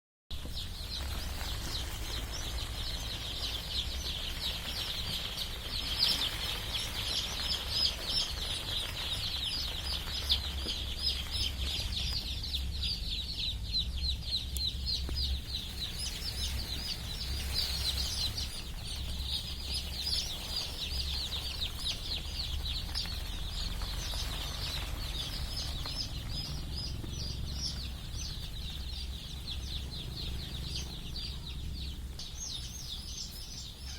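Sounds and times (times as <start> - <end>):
chicks peeping: 0.3 - 33.9.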